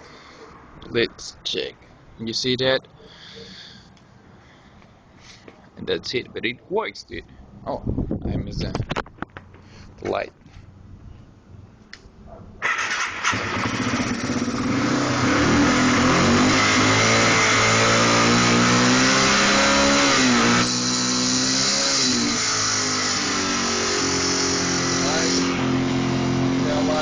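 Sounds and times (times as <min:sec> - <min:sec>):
dirt bike engine revving: 0:12.6 - 0:27.0.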